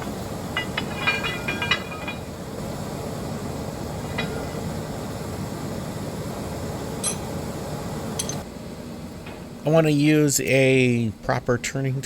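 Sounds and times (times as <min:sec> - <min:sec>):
rail yard background noise: 0:00.0 - 0:12.0
metallic clinks of steel tools: 0:07.0 - 0:07.3, 0:08.2 - 0:08.4.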